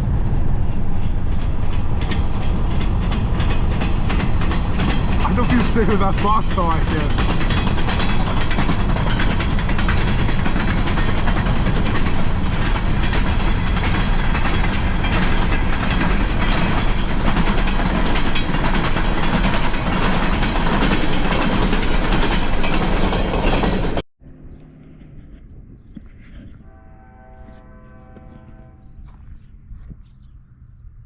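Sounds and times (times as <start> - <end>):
train cars clattering: 0.0 - 24.0
train wheels on rails: 0.0 - 24.0, 26.1 - 30.0.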